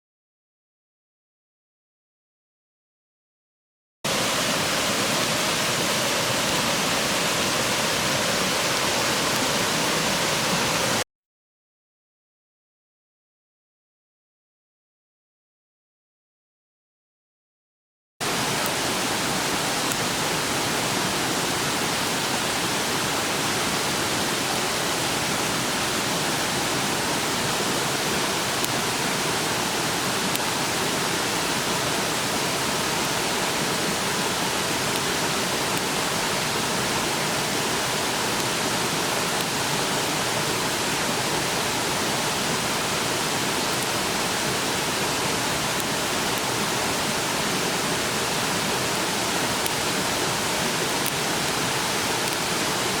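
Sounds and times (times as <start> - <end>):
river water rushing: 4.1 - 11.0, 18.2 - 53.0.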